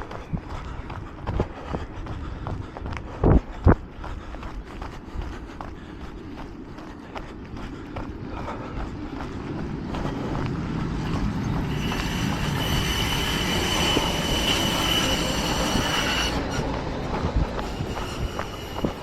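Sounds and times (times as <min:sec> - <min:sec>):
rail vehicle passing: 0:05.5 - 0:19.0
wheels squealing: 0:09.7 - 0:19.0.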